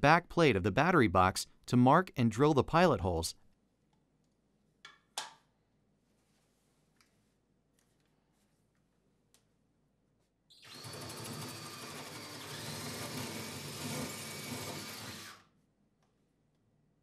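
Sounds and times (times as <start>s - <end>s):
power drill boring: 10.6s - 15.5s.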